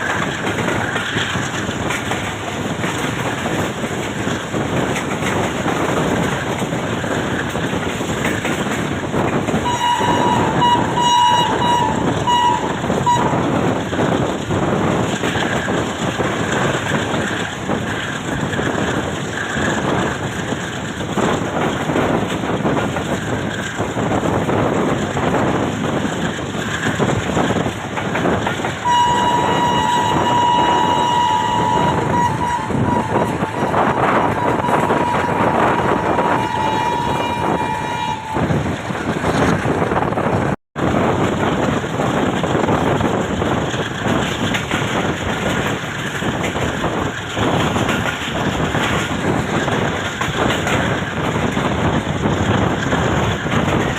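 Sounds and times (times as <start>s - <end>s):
train wheels rumbling on track: 0.0s - 53.9s
train horn blasts: 9.6s - 13.5s, 28.8s - 38.6s.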